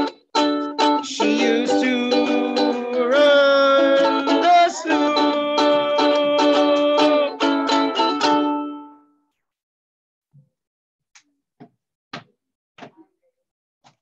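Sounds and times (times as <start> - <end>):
strummed string instrument: 0.0 - 9.1.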